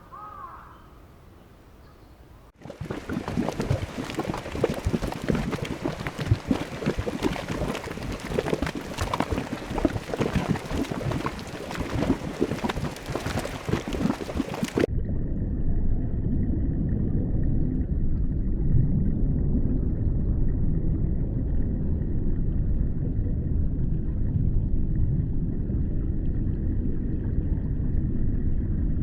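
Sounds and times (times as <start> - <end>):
water bubbling and splashing: 2.6 - 14.9.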